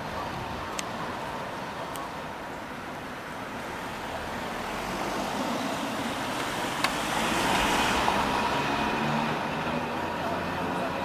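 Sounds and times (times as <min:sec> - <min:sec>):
street traffic: 0:00.0 - 0:11.0
vehicle approaching: 0:03.7 - 0:11.0.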